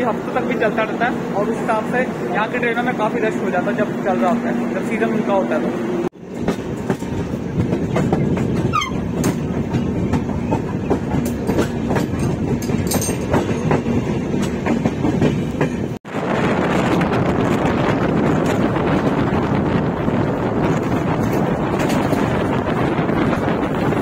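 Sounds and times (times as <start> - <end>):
train rumbling at speed: 0.0 - 24.0
wheels clicking over rail joints: 6.3 - 16.0, 20.5 - 24.0
wind on microphone: 16.1 - 24.0.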